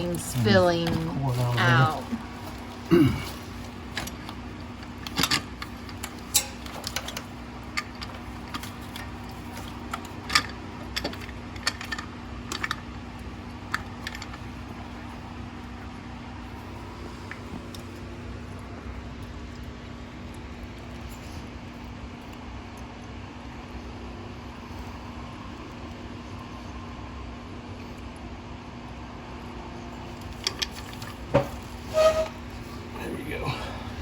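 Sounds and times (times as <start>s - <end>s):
steady low hum: 0.0s - 34.0s
metal tools clicking and clinking: 3.3s - 12.8s.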